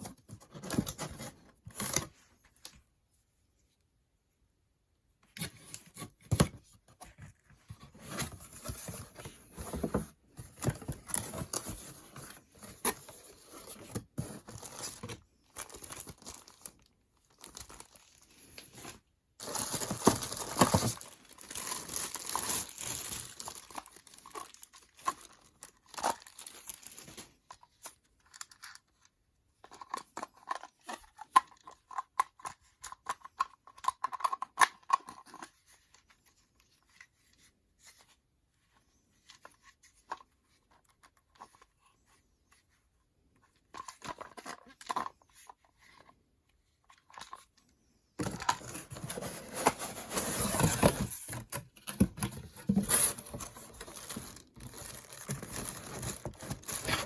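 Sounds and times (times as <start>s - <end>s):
packaging rustling and clicking: 7.2s - 27.3s, 48.2s - 57.0s
packaging tearing and crinkling: 19.4s - 27.3s, 48.3s - 57.0s.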